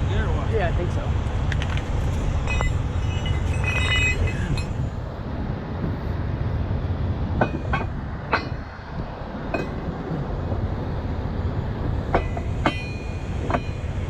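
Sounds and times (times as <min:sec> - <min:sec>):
diesel engine rumbling: 0:00.0 - 0:14.0
metal clanks of tow gear: 0:01.5 - 0:05.0, 0:07.4 - 0:10.0, 0:12.0 - 0:13.9.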